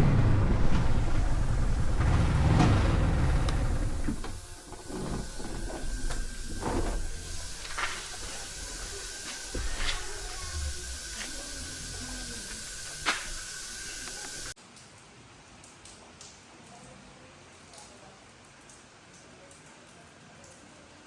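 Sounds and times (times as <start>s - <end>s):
motorcycle engine: 0.0s - 14.5s
hiss of water: 1.4s - 14.6s.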